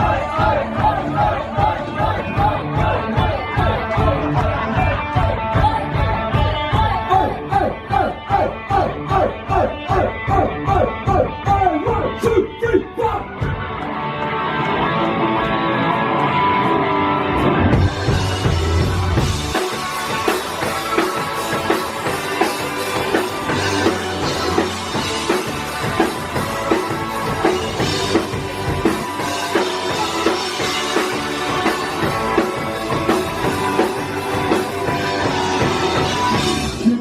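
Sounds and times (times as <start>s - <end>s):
driving drum kit: 0.0s - 13.9s, 17.3s - 37.0s
electric guitar: 0.0s - 37.0s
live rock band playing: 0.0s - 37.0s.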